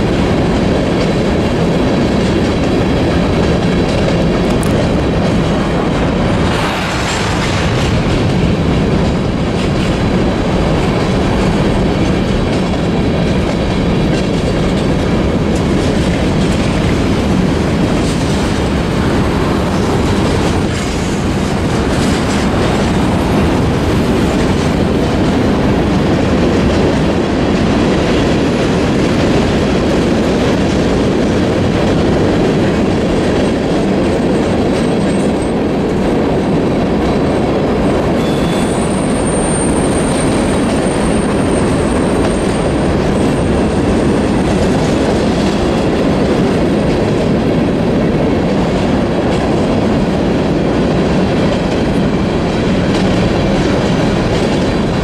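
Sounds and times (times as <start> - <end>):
steel wheels rumbling on rail: 0.0 - 55.0
high-pitched wheel squeal: 38.2 - 42.4.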